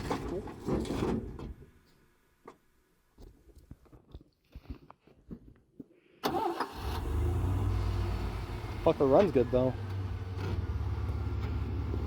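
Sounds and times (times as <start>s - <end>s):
truck engine running: 7.0s - 12.0s.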